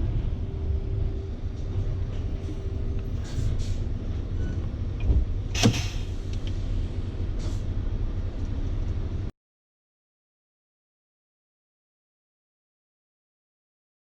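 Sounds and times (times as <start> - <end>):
road noise inside cab: 0.0 - 9.3
truck engine low rumble: 0.0 - 9.3.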